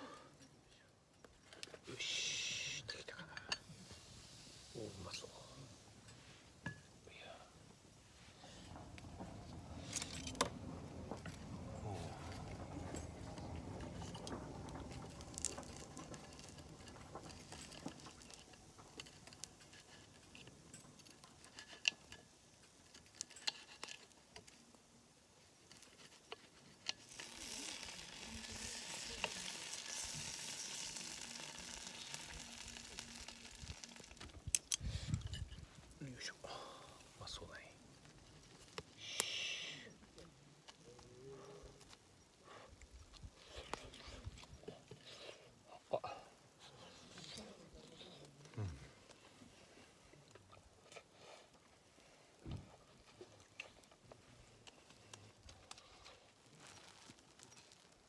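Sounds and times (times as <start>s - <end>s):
food sizzling in frying: 3.6s - 7.0s, 14.9s - 23.9s, 25.2s - 35.9s
sharp clicks and crackles: 8.7s - 36.0s.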